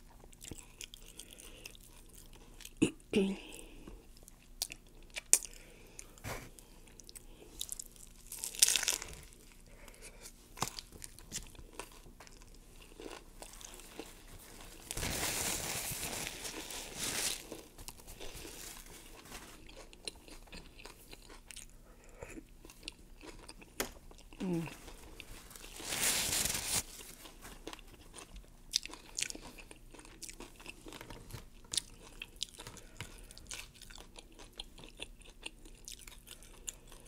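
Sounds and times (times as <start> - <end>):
chewing and mouth sounds: 0.0 - 2.9, 3.5 - 9.6, 19.1 - 25.3, 27.6 - 37.0
crunching taco shell: 7.6 - 9.6.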